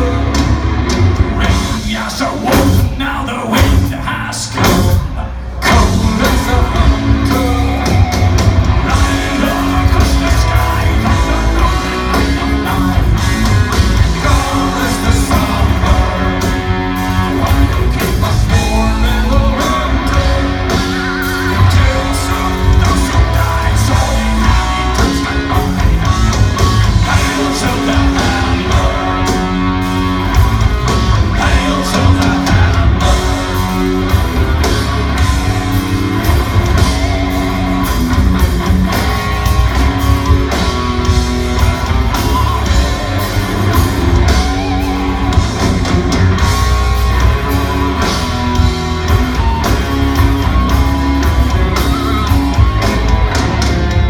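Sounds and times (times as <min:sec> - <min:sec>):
bass guitar: 0:00.0 - 0:54.0
distorted electric guitars: 0:00.0 - 0:54.0
drums: 0:00.0 - 0:54.0
person singing: 0:01.3 - 0:29.7, 0:30.9 - 0:33.8.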